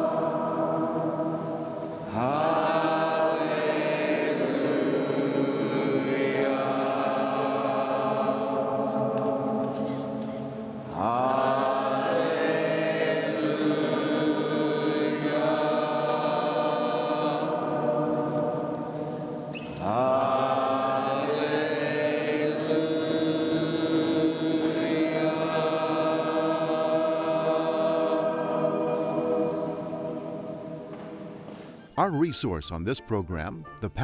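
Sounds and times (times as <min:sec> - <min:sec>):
sustained chant-like voices: 0:00.0 - 0:31.2.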